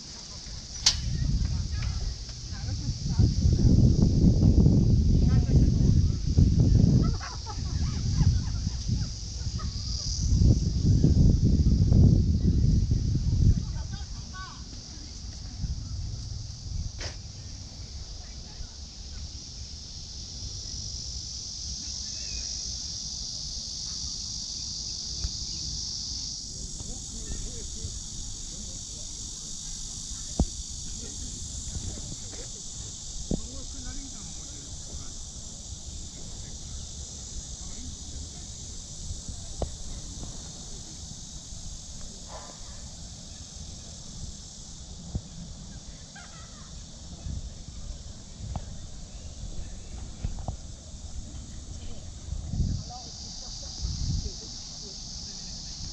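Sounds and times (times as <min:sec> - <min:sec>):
insects droning: 0:00.0 - 0:55.9
sharp tick: 0:00.8 - 0:01.2.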